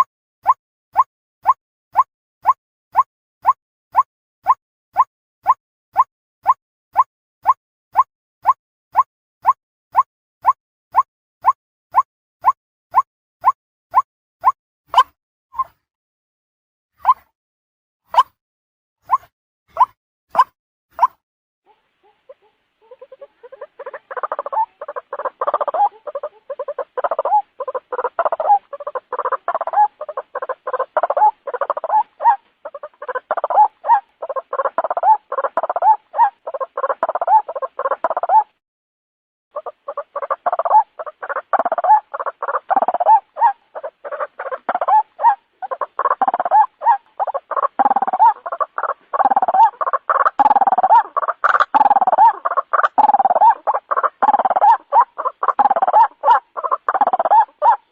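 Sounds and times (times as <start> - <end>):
waterhen croaking calls: 19.1 - 38.6, 39.5 - 57.9.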